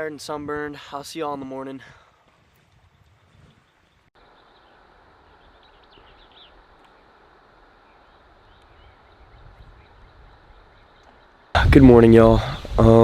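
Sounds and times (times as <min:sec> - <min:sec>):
faint outdoor ambience: 0:00.0 - 0:13.0
quiet bird chirps: 0:02.6 - 0:11.5.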